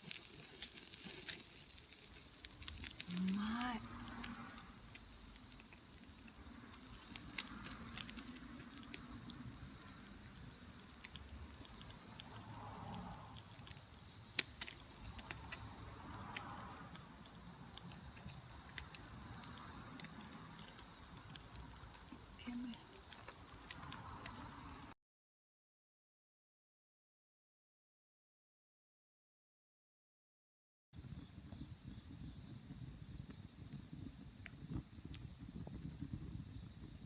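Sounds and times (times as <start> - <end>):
crickets trilling: 0.0 - 25.0, 31.0 - 37.0
sharp crackles and clicks: 0.0 - 25.0, 31.4 - 37.0.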